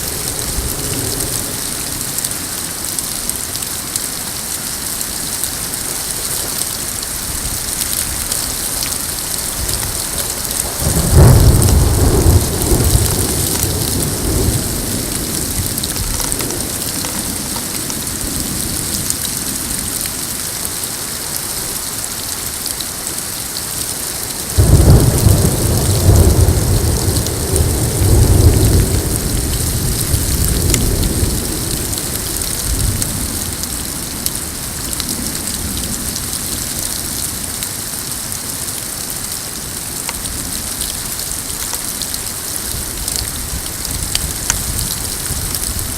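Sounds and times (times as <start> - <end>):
thunder rumbling: 0.0 - 2.8, 7.2 - 20.0, 24.6 - 36.6
rain falling: 0.0 - 45.9.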